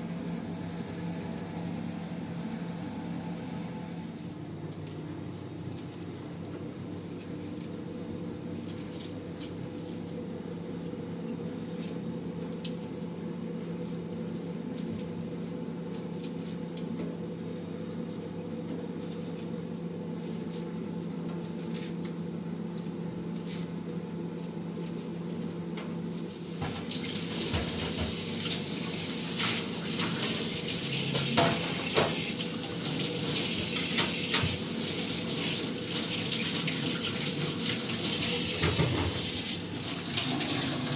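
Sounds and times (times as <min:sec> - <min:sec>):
water running: 0:26.3 - 0:40.9
dishes and utensils clinking: 0:26.6 - 0:39.4.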